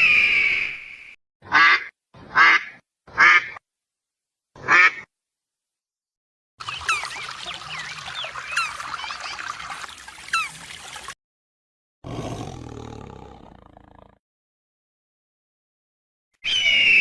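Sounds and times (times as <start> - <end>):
small birds chirping: 6.6 - 11.1
low animal roar: 12.0 - 14.2.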